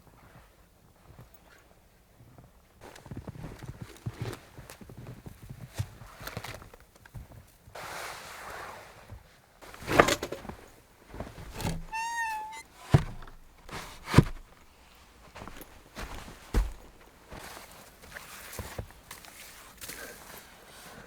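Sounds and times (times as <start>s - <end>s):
knocks and thuds: 11.4s - 14.6s
short wavering squeak: 11.8s - 12.8s.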